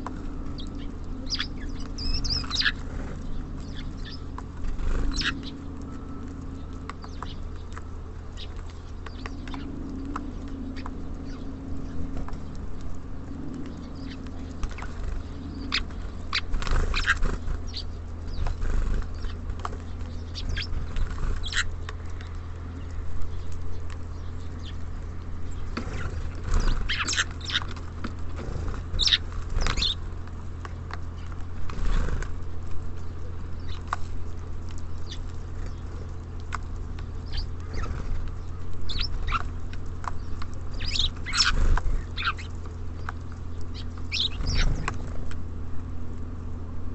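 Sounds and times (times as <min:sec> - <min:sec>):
wing flutters: 0:00.0 - 0:46.2
birds pecking and tapping: 0:00.0 - 0:46.5
steady low rumble: 0:00.0 - 0:46.9
high bird chirps: 0:00.6 - 0:02.8, 0:03.6 - 0:06.2, 0:38.9 - 0:39.5, 0:40.2 - 0:42.5, 0:43.7 - 0:45.0.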